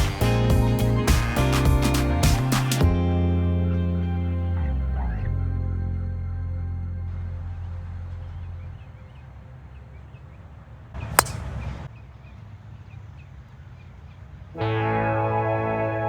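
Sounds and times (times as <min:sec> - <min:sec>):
golf club striking ball: 0:11.0 - 0:11.8.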